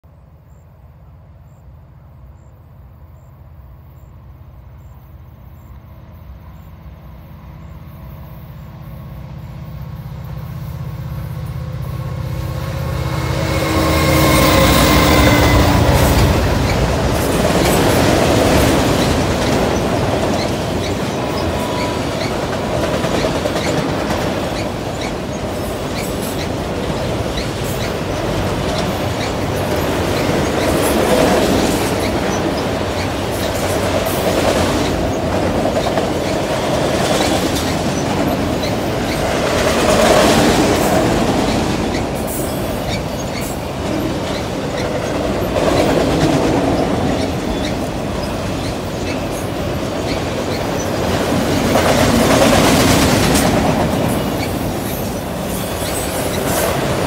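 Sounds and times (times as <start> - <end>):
rail cars rumbling and clattering: 0.0 - 57.0
diesel locomotive engines humming: 0.1 - 57.0.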